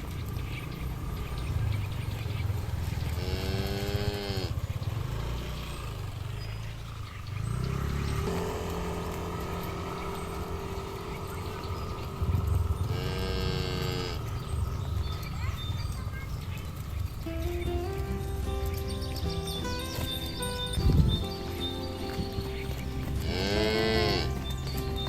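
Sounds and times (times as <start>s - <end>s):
cattle mooing: 3.1s - 4.6s, 12.8s - 14.5s, 23.2s - 24.5s
low rumble: 7.5s - 25.0s
steady droning tone: 8.2s - 25.0s.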